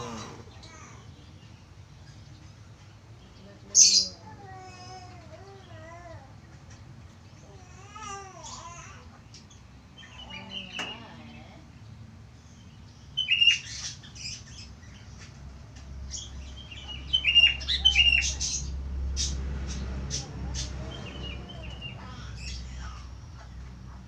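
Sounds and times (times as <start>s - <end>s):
budgerigar chirping and warbling: 3.8s - 4.2s, 13.2s - 14.7s, 16.2s - 23.5s.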